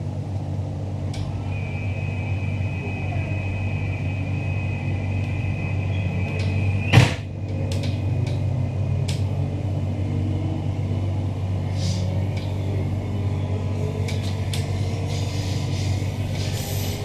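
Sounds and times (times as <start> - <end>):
train carriage hum: 0.0 - 17.0
high steady tone: 1.3 - 7.0
loud thump: 6.9 - 7.3.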